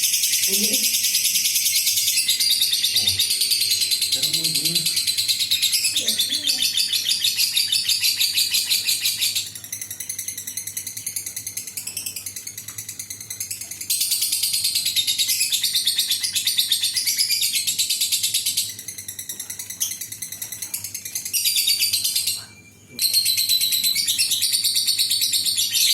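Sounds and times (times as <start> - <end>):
bird chattering trill: 0.0 - 25.9.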